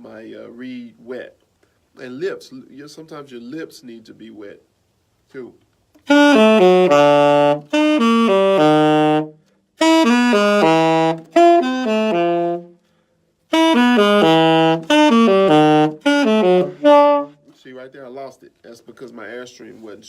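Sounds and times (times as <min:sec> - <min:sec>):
alto saxophone arpeggios: 0:06.0 - 0:12.9, 0:13.5 - 0:17.5.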